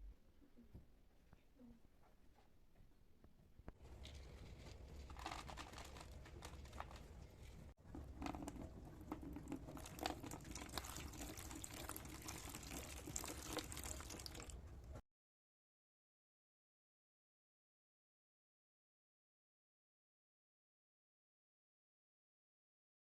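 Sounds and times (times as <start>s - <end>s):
rustling and crinkling: 3.6s - 15.0s.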